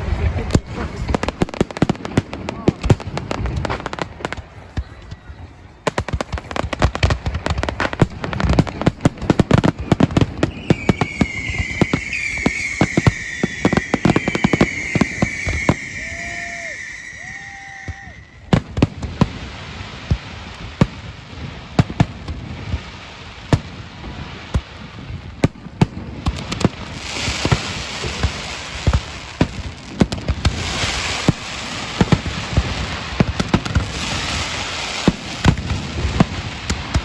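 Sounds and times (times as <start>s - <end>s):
fireworks bangs and crackles: 0.0s - 37.0s
high hissing firework whistle: 10.4s - 18.5s.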